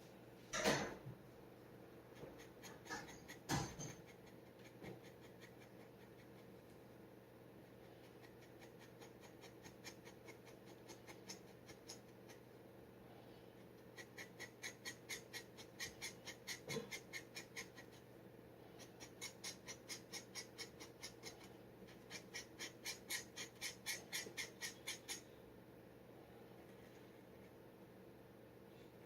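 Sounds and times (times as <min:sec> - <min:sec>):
dip pen scratching paper: 0:02.1 - 0:06.6, 0:07.9 - 0:12.4, 0:13.8 - 0:18.0, 0:18.8 - 0:25.2.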